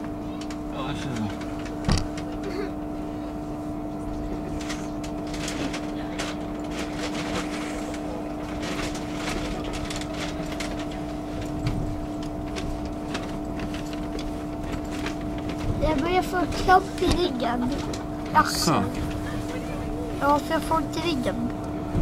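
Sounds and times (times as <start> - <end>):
train interior rumble: 0.0 - 22.0
constant whine: 8.1 - 22.0.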